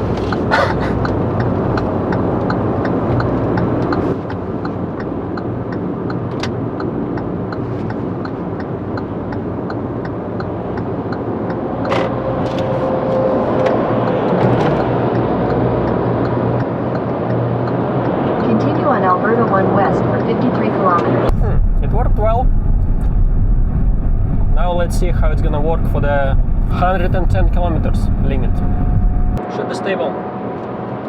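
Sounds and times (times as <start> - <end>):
light regular ticking: 0.0 - 12.0, 21.3 - 29.4
car cabin road and engine noise: 0.0 - 29.4.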